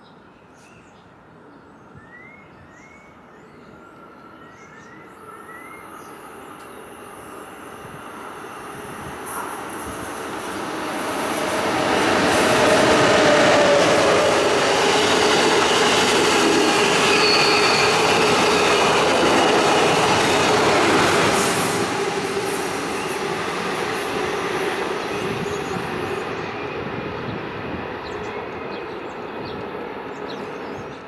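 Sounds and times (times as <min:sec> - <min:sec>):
train wheels rumbling on rails: 0:07.7 - 0:31.0
steady squealing tone: 0:11.6 - 0:22.2.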